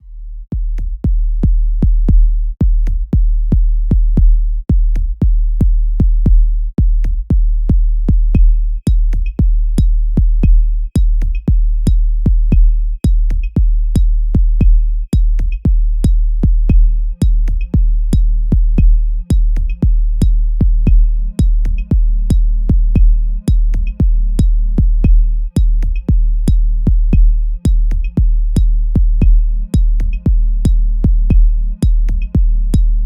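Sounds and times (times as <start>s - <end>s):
high ticking percussion: 8.4s - 32.9s.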